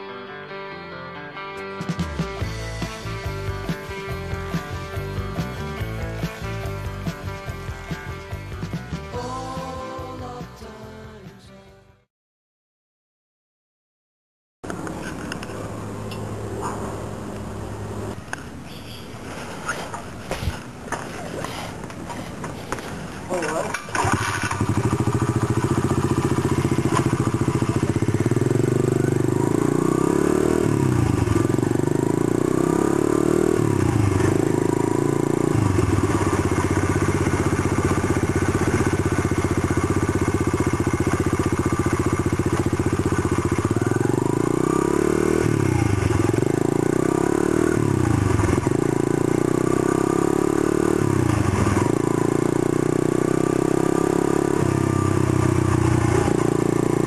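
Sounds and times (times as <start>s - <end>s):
motorbike engine accelerating: 23.3s - 57.0s.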